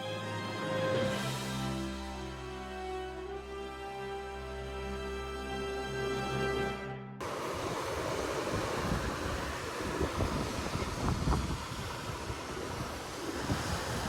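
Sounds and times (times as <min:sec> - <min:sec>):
ocean surf: 0:07.2 - 0:14.0
wind rumbling on microphone: 0:07.2 - 0:14.0.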